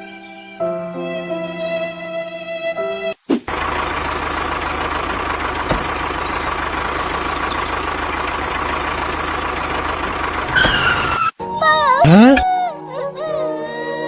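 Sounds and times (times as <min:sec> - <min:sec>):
heavy engine idling: 0:03.5 - 0:10.6.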